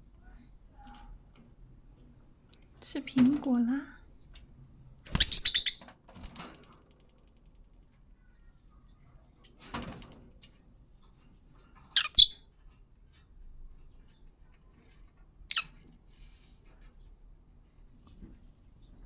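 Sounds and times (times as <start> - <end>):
parrots rustling: 5.1 - 5.8
sharp high parrot sounds: 5.1 - 5.8, 12.0 - 12.4.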